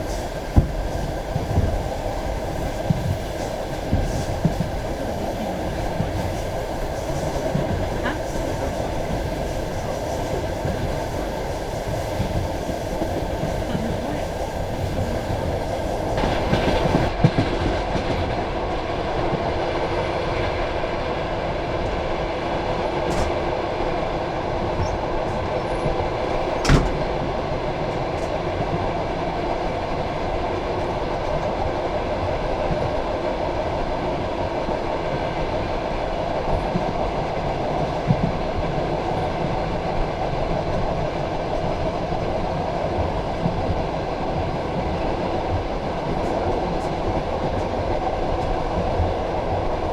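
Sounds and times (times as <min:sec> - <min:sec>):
train wheels rumbling on rail: 0:00.0 - 0:49.9.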